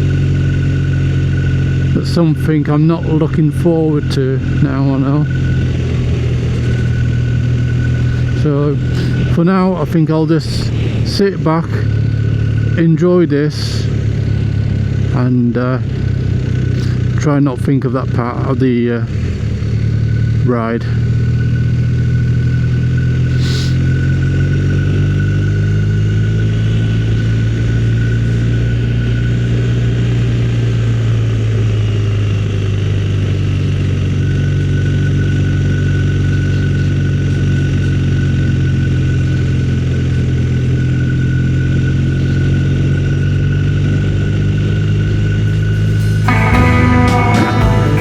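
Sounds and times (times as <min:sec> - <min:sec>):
motorcycle engine running: 0:00.0 - 0:48.0
thin high whine: 0:44.8 - 0:48.0.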